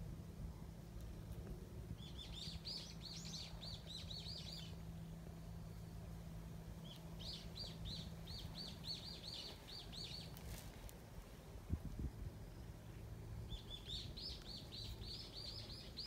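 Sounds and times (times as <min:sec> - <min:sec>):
small bird chirping: 0:02.0 - 0:06.0, 0:06.8 - 0:10.6, 0:12.4 - 0:16.0.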